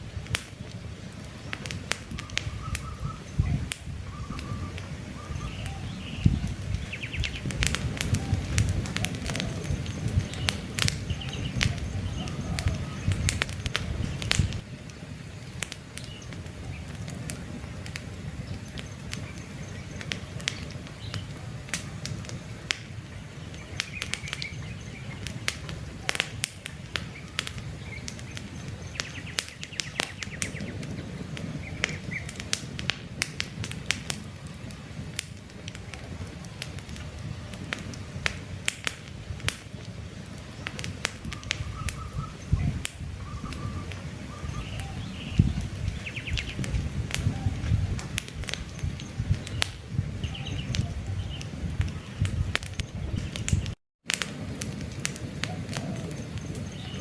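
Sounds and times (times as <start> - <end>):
campfire crackling and popping: 0.0 - 57.0
bird chirps: 2.2 - 13.4, 23.2 - 26.2, 27.0 - 32.4, 41.3 - 47.9, 48.6 - 53.7, 55.5 - 57.0.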